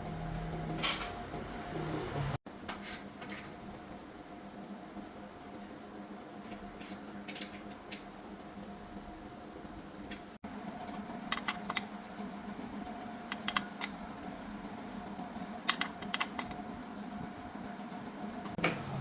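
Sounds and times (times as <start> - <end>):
steady low hum: 0.0 - 19.0
sharp clicks and taps: 10.9 - 11.9, 13.3 - 14.1, 15.4 - 16.6.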